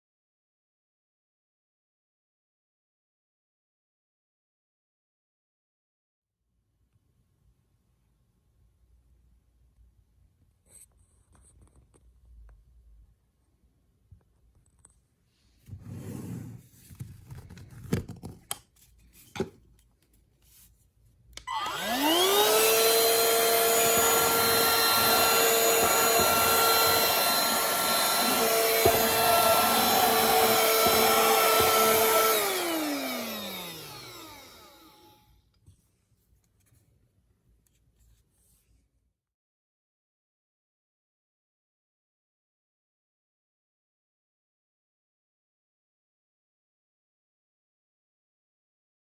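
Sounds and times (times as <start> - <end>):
handheld vacuum motor whining: 21.4 - 35.2.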